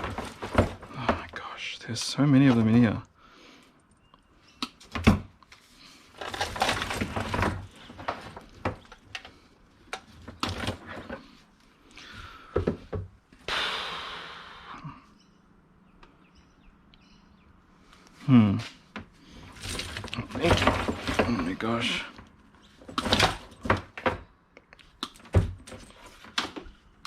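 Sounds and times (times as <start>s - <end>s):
cords rustling and scraping: 0.0s - 3.0s, 4.8s - 11.9s, 17.9s - 24.2s
plugs and cables clattering: 0.0s - 3.0s, 4.6s - 11.4s, 19.4s - 24.2s.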